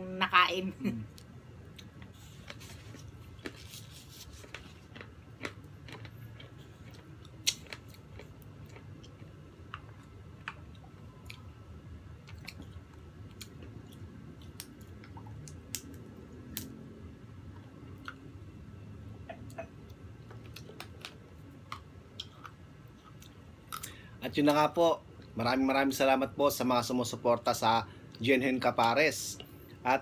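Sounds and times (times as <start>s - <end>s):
chewing soft cake: 1.1s - 16.8s, 17.4s - 18.4s, 19.5s - 24.0s.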